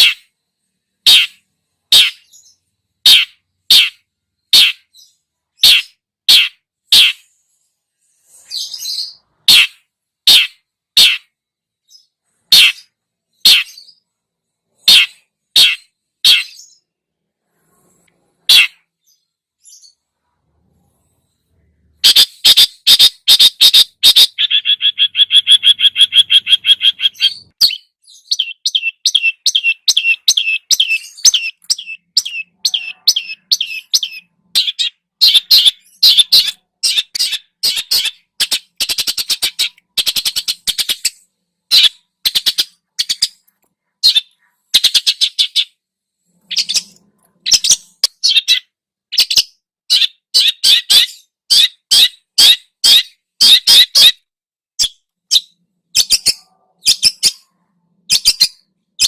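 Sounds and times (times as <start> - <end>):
songbird chattering and trilling: 1.0 - 16.9, 22.0 - 45.8, 46.4 - 54.2, 54.8 - 59.0.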